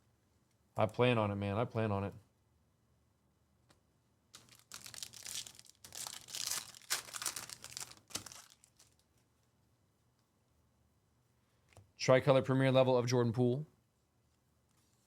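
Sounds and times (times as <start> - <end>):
plastic wrapper tearing and crinkling: 4.3 - 9.2.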